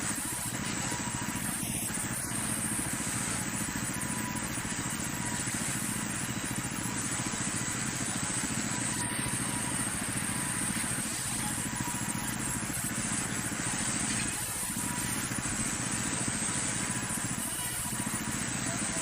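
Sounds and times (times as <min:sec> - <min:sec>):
sawmill machinery drone: 0:00.0 - 0:19.0.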